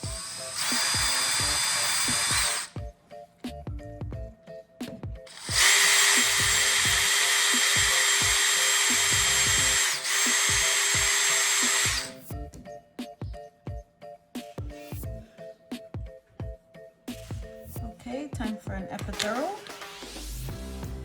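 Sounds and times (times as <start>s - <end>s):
power drill drilling into plastic: 0.0s - 2.8s, 5.3s - 12.2s
background music with steady beat: 0.0s - 21.0s.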